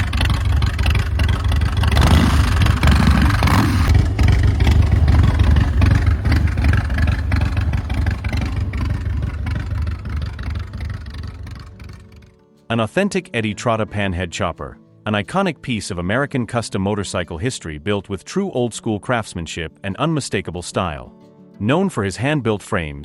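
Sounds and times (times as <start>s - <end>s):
motorcycle engine rumbling: 0.0s - 12.3s.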